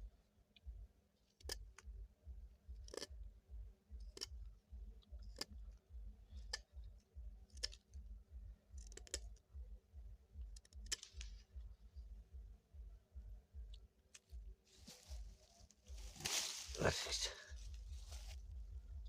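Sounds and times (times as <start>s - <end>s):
faint low pulsing rumble: 0.0s - 19.0s
sharp clicks or snips: 7.5s - 8.0s, 10.5s - 11.5s.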